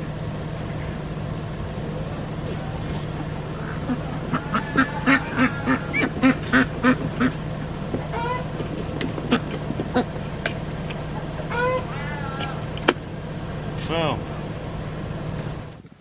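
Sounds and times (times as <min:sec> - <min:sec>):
vehicle engine hum: 0:00.0 - 0:16.0
duck quacking: 0:03.6 - 0:07.4, 0:08.1 - 0:08.5, 0:11.5 - 0:12.6.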